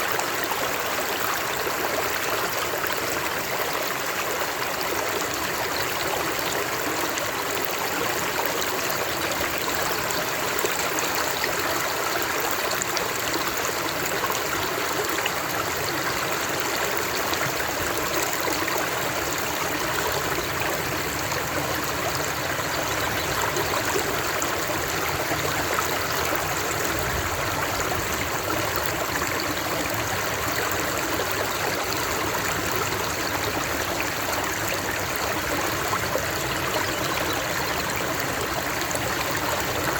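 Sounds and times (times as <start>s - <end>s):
stream rushing and babbling: 0.0s - 39.9s.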